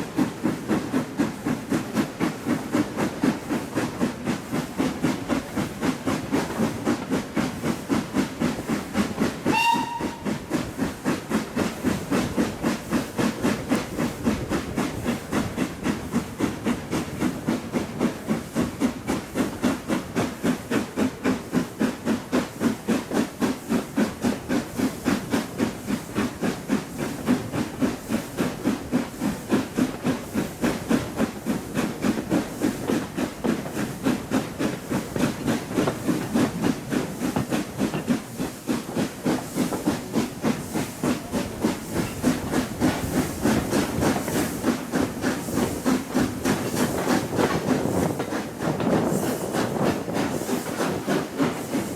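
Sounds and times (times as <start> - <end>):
steam locomotive chuffing: 0.0 - 51.9
locomotive whistle blast: 9.5 - 10.4.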